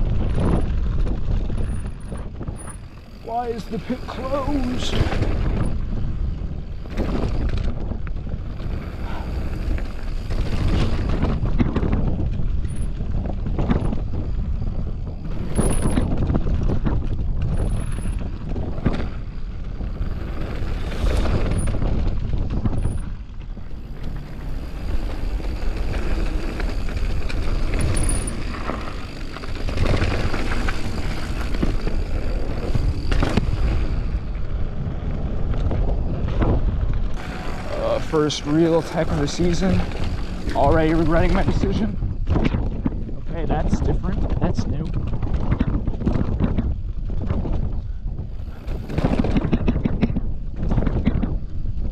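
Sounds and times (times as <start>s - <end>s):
bike tyres and frame clattering: 0.0s - 51.9s
wind rushing over microphone: 0.0s - 51.9s.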